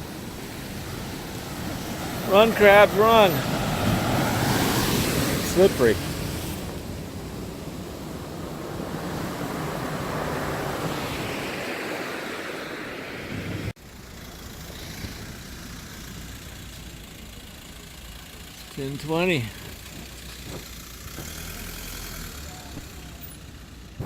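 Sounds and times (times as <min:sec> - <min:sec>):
surf washing over rocks: 0:00.0 - 0:13.8
wind on microphone: 0:03.4 - 0:13.7.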